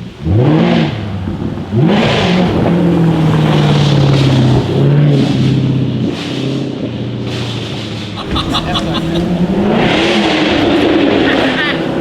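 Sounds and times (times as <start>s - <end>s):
car engine revving: 8.2s - 12.0s.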